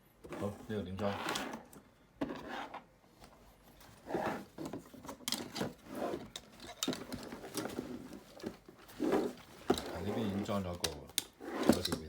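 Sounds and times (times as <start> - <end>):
plastic parts rubbing and scraping: 3.8 - 12.0.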